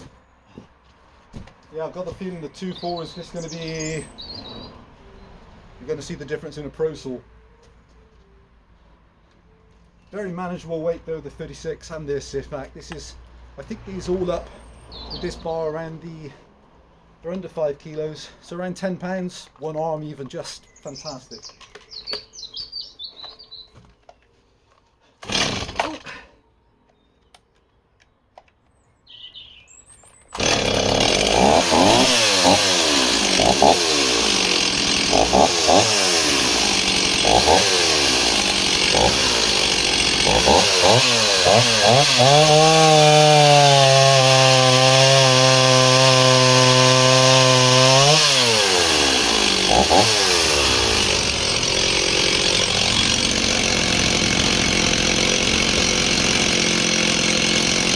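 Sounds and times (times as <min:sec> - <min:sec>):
chainsaw revving: 0:02.0 - 0:04.7, 0:25.2 - 0:26.2, 0:30.3 - 0:57.9.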